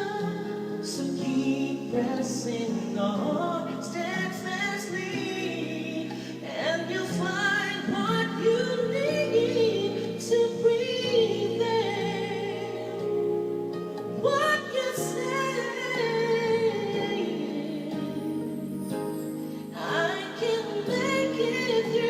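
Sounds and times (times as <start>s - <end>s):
instrumental backing track: 0.0s - 22.0s
woman singing with vibrato: 4.0s - 13.4s, 14.2s - 18.6s, 19.7s - 22.0s.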